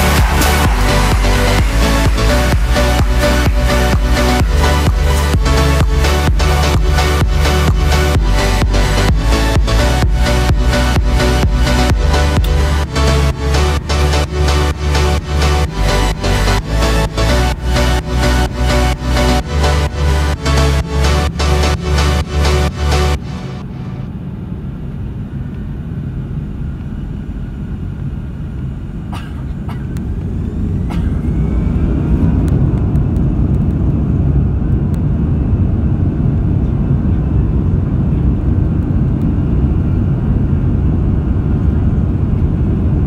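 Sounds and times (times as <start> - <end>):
engine whine: 0.0 - 43.0
jet engine rumble inside cabin: 22.7 - 43.0.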